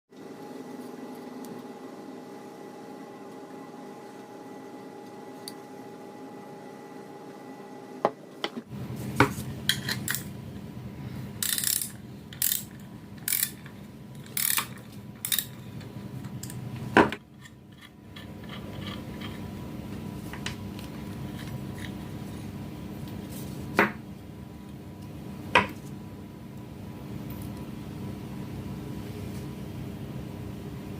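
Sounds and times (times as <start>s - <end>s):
steady low hum: 0.2s - 30.9s.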